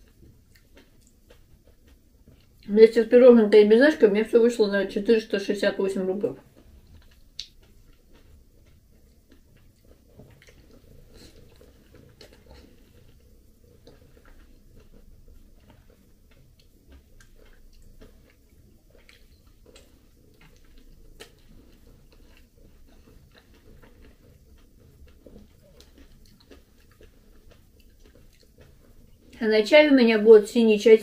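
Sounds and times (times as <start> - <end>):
chewing and biting fruit: 0.0 - 2.7, 6.4 - 29.4.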